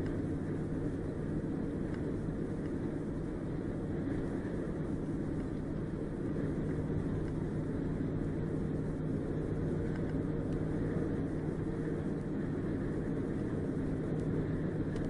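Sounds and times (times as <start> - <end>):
road noise: 0.0 - 15.0
vehicle engine hum: 0.0 - 15.0.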